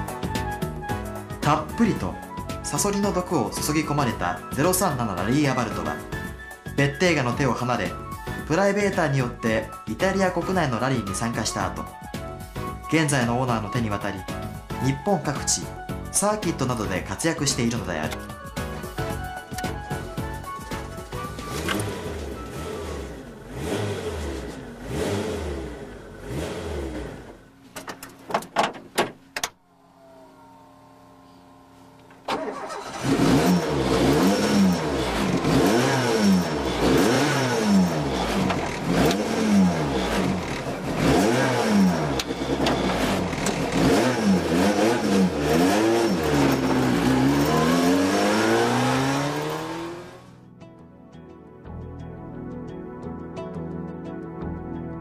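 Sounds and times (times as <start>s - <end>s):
car engine revving: 21.0s - 27.5s, 29.6s - 50.4s.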